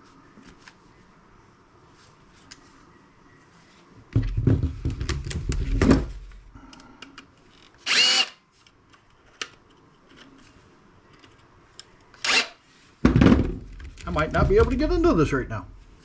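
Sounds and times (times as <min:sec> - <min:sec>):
power drill whirring: 0:07.8 - 0:08.4, 0:12.2 - 0:12.6.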